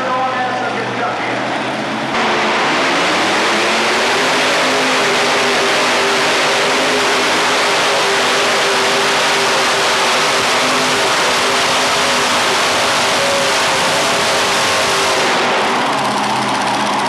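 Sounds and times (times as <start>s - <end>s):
tractor engine running loud: 0.0s - 17.0s.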